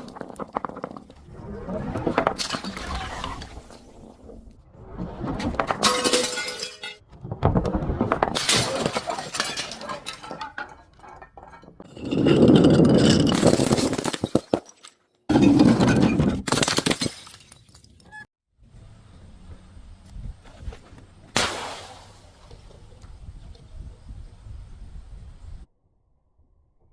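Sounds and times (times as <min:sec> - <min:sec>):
glass breaking and crunching: 0:05.8 - 0:07.0, 0:08.3 - 0:18.0.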